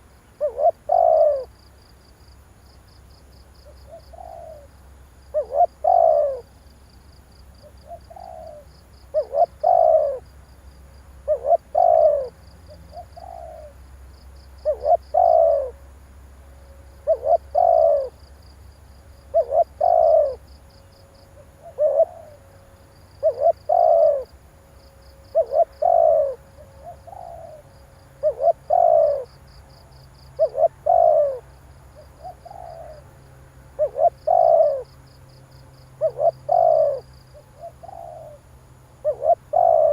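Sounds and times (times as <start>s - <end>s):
dove cooing: 0.0s - 1.6s, 3.6s - 6.6s, 7.6s - 10.3s, 11.2s - 13.8s, 14.6s - 15.8s, 17.0s - 18.2s, 19.2s - 20.5s, 21.2s - 22.5s, 23.2s - 24.4s, 25.0s - 35.0s, 36.0s - 39.9s.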